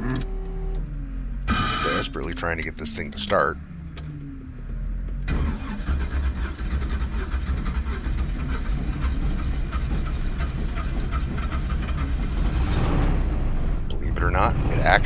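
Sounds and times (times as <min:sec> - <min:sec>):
car engine cranking and running: 0:00.0 - 0:15.0.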